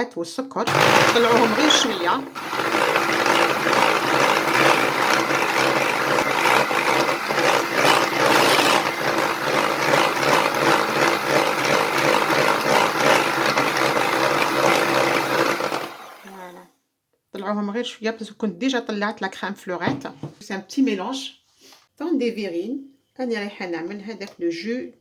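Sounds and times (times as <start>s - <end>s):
electric mixer running: 0.7s - 16.5s.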